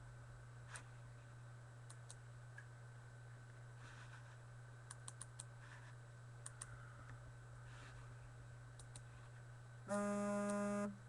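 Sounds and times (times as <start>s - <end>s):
low steady hum: 0.0s - 11.0s
computer keyboard or mouse clicks: 4.9s - 5.5s, 8.8s - 9.1s.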